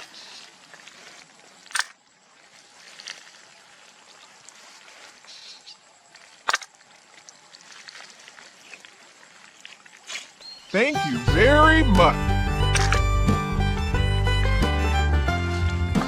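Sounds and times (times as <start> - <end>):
sharp clicks: 1.7 - 2.0, 6.5 - 6.7, 12.7 - 13.2.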